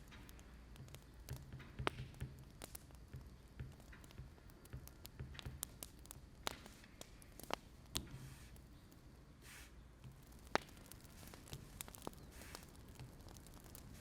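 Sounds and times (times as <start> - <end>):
fire low rumble: 0.0 - 14.0
soft hiss: 0.0 - 14.0
wood fire pops and snaps: 0.0 - 14.0.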